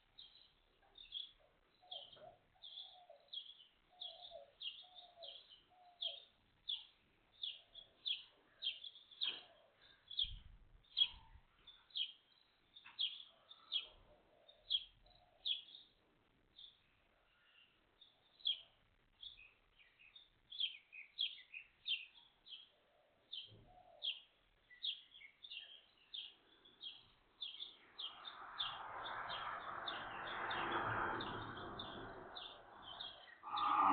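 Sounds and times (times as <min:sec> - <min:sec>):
small birds chirping: 0:00.0 - 0:33.9
rushing noise: 0:28.1 - 0:33.9.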